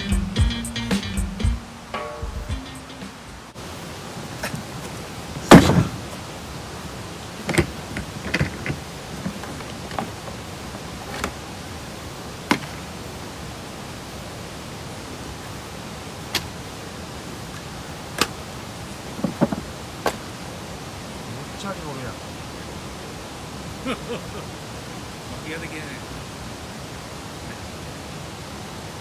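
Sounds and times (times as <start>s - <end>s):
steady outdoor hiss: 0.0s - 29.0s
sharp knocks and clicks: 5.4s - 6.2s, 7.5s - 10.4s, 12.5s - 12.8s, 19.2s - 20.2s.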